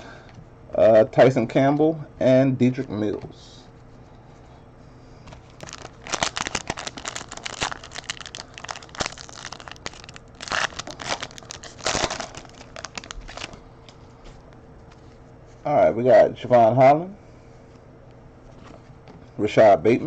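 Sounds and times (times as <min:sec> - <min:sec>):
foil wrapper crinkling and tearing: 0:05.3 - 0:14.0.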